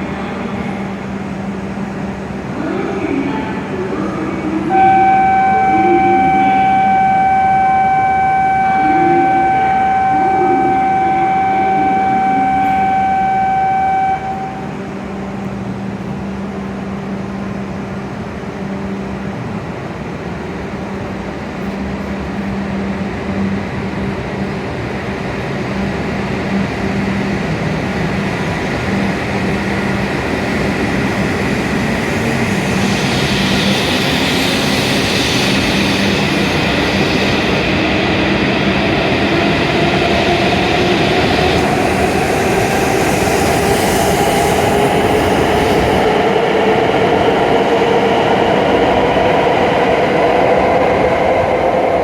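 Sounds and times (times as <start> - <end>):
train running noise: 0.0 - 52.0
steady electronic tone: 4.2 - 15.2, 26.4 - 52.0
rushing hiss: 29.7 - 39.3, 40.5 - 47.3.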